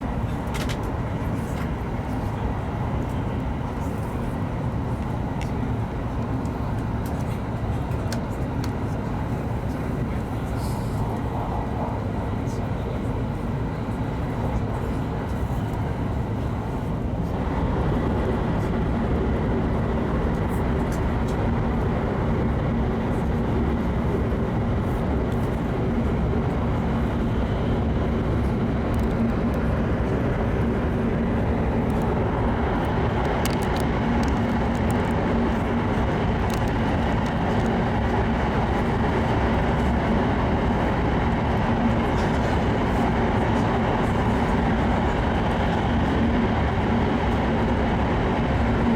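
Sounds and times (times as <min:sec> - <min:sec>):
train cabin rumble: 0:00.0 - 0:48.9.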